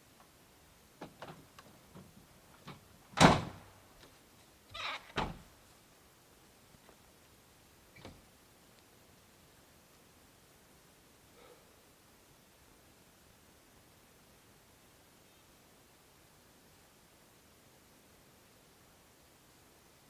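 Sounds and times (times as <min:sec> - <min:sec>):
light clicks and knocks: 0:01.0 - 0:05.4.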